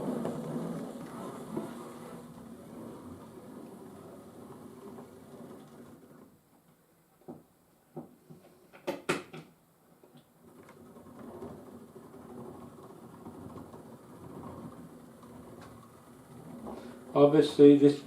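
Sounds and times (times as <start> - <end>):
model train motor growling: 0.0 - 6.2, 10.4 - 18.0.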